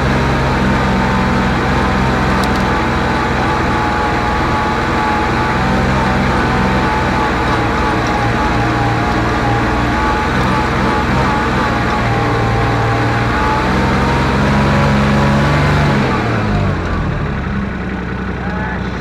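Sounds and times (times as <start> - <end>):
high drivetrain whine: 0.0 - 19.0
utility vehicle engine under load: 0.0 - 19.0.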